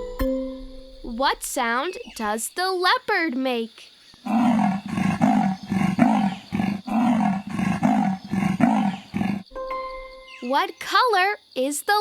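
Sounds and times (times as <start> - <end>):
leopard grunting calls: 4.2 - 9.5.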